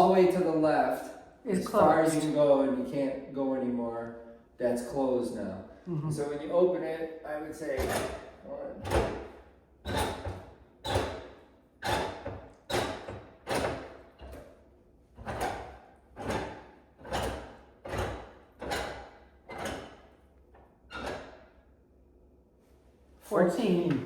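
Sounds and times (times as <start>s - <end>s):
damper rod clunking and scraping: 7.7s - 21.5s.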